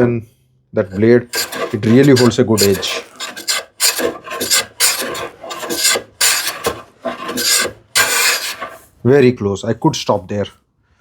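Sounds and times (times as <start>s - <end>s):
hand plane shaving wood: 0.9s - 8.9s.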